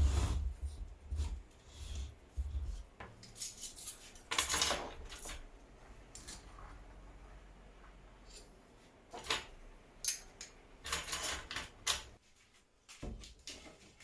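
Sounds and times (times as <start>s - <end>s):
metal parts clinking and scraping: 3.2s - 5.5s, 9.1s - 12.2s.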